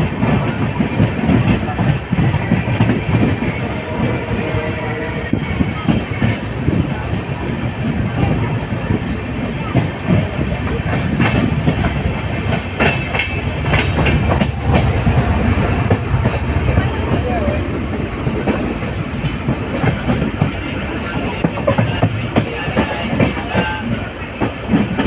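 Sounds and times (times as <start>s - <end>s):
train running gear rumble: 0.0s - 25.0s
wheels clicking over rail joints: 5.6s - 25.0s.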